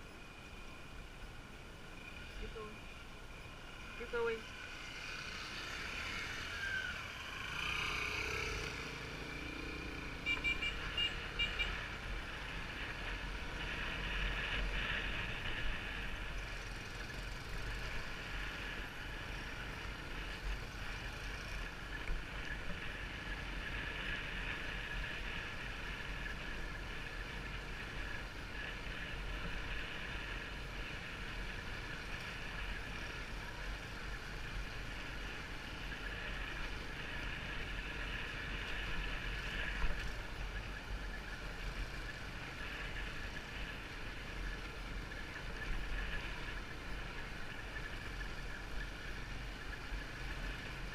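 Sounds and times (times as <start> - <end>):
short beeps: 10.3 - 11.7.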